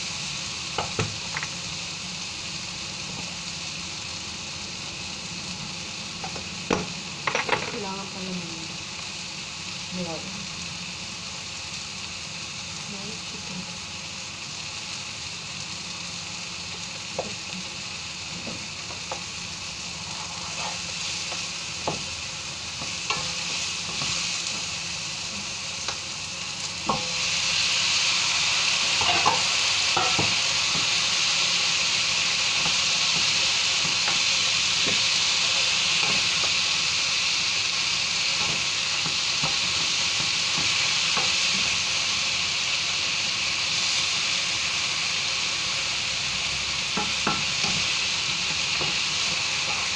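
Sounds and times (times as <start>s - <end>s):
vegetables sizzling in a frying pan: 0.0s - 49.9s
wooden spatula knocking on pan: 47.0s - 47.9s.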